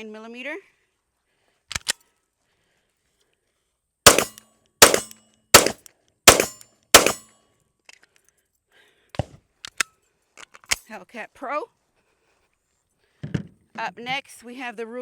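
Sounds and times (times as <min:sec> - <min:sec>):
pistol shots: 0:04.1 - 0:07.2.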